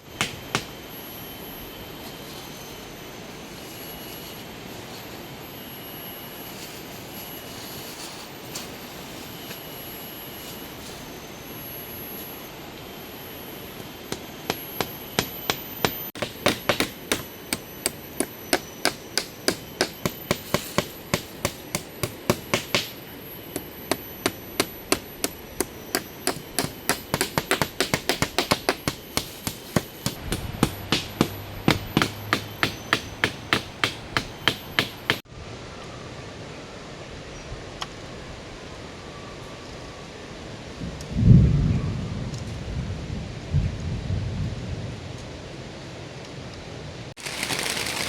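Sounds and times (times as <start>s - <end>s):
hammer striking wood: 0.2s - 0.7s, 14.1s - 35.2s.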